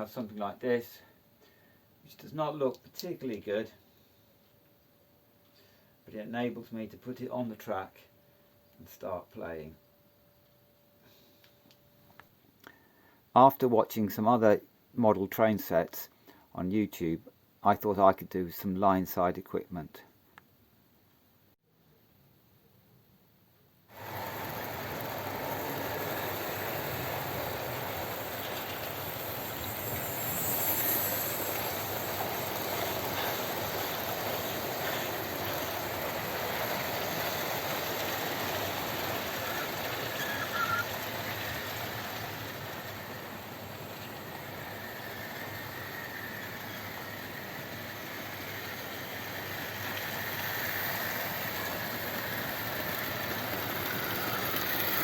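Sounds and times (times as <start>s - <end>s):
model trains rolling on track: 23.9s - 55.0s.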